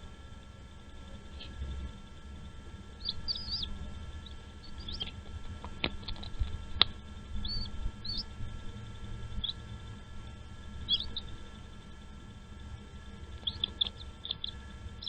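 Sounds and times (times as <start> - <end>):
birds chirping: 0.8 - 15.0
sharp clicks: 13.4 - 14.6.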